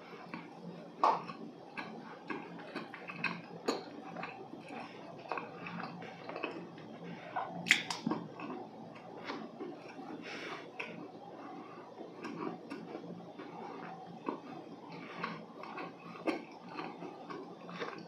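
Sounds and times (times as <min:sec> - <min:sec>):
chewing dry cake: 0:00.0 - 0:18.0
mouth clicks: 0:07.7 - 0:08.0.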